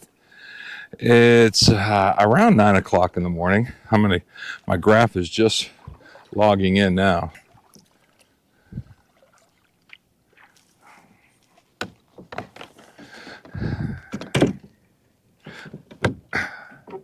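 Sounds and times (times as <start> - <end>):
knocks and thumps on kayak: 11.8 - 14.8, 15.5 - 17.0.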